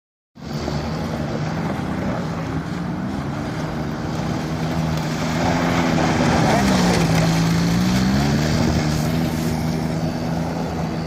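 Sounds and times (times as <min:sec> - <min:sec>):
motorcycle engine running: 0:04.1 - 0:11.0
wind noise: 0:04.2 - 0:10.4.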